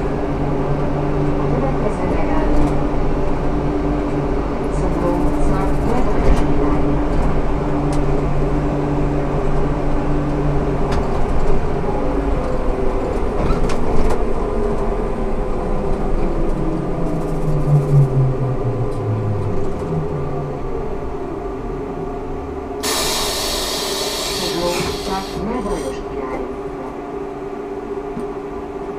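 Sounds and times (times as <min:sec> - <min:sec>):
trolleybus electric whine: 0:00.0 - 0:28.9
loud hiss of air: 0:22.8 - 0:25.5.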